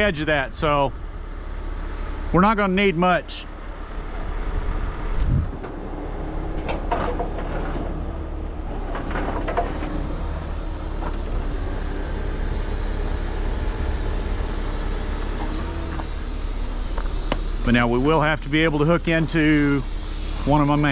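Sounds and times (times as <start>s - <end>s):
diesel truck engine idling: 0.0s - 20.9s.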